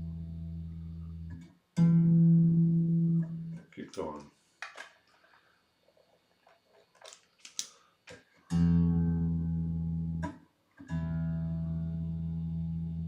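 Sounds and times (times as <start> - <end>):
small clicks: 6.9 - 8.2.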